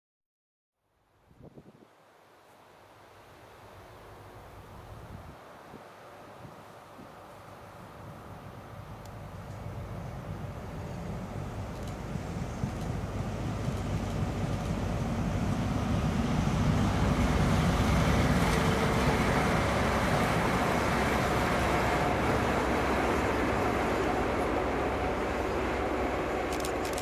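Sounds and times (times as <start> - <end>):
train rumble: 6.3 - 27.0
road traffic noise: 8.5 - 27.0.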